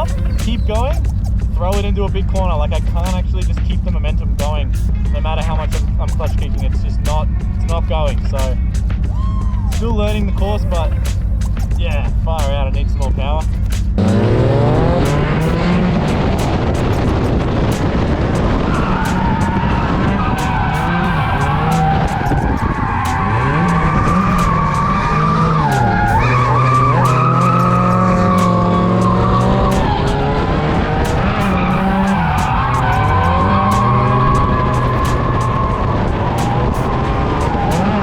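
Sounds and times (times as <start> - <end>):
car engine revving: 0.0 - 38.0
tyres skidding: 0.0 - 38.0
sharp clicks: 20.3 - 38.0.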